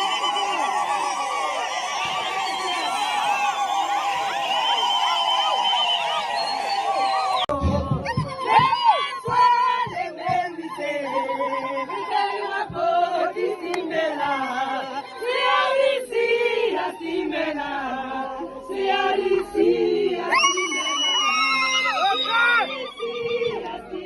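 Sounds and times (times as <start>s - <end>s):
choir singing: 9.3s - 21.5s, 22.6s - 24.0s.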